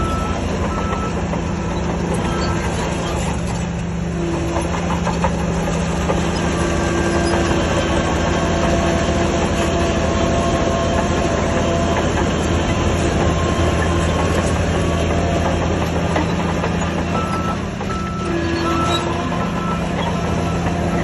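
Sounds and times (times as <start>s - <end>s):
heavy diesel machine running: 0.0s - 21.0s.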